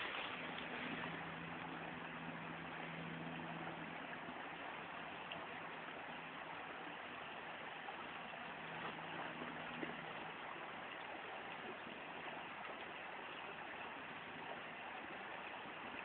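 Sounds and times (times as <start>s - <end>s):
vehicle engine idling: 0.0s - 12.6s.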